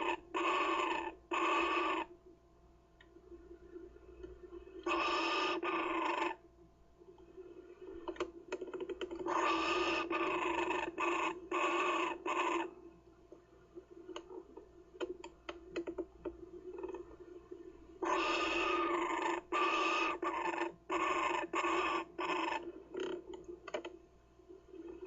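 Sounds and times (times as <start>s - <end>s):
bird chick rasping calls: 0.0s - 2.1s, 4.8s - 6.4s, 9.3s - 12.7s, 18.0s - 22.7s
steady low hum: 0.0s - 25.0s.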